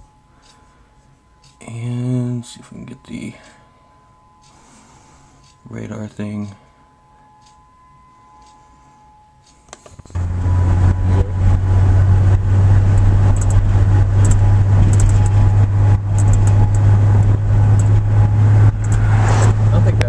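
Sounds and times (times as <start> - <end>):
faint siren tone: 0.0 - 20.0
car road and wind noise: 9.9 - 20.0
clicks: 12.9 - 13.6, 14.2 - 18.0, 18.7 - 19.6.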